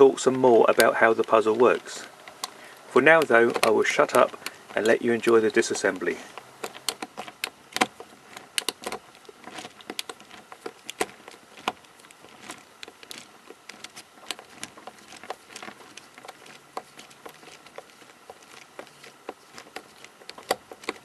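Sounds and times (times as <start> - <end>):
plastic puzzle cube clicking: 6.6 - 21.0.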